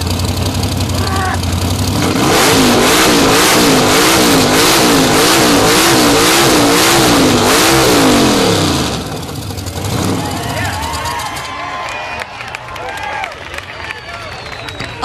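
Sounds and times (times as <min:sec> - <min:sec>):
hot rod engine revving: 0:00.0 - 0:11.5.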